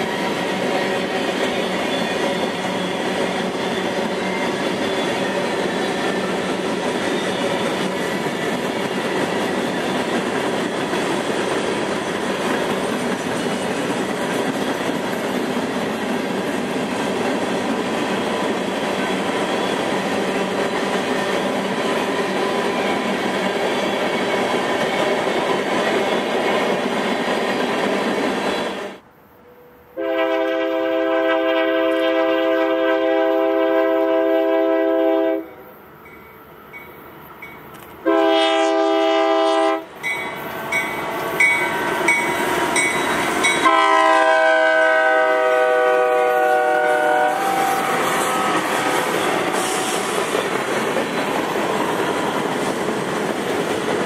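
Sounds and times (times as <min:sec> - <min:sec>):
locomotive air horn blasts: 0:29.5 - 0:35.6, 0:38.0 - 0:39.9, 0:43.6 - 0:49.0.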